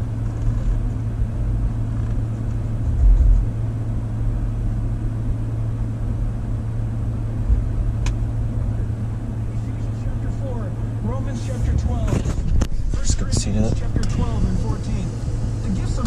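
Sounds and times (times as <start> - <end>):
car engine idling rumble: 0.0 - 16.0.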